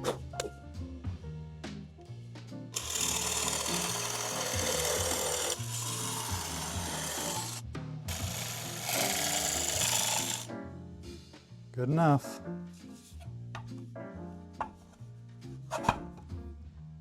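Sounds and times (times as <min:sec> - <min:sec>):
background music: 0:00.0 - 0:17.0
power tool cutting wood: 0:02.8 - 0:10.5.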